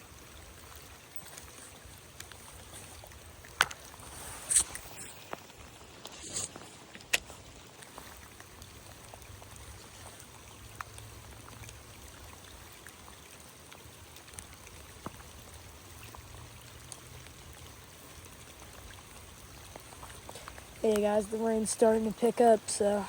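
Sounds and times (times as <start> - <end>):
creek water flowing: 0.0 - 23.0
rain falling: 0.0 - 23.0
raindrop ticks: 6.9 - 23.0.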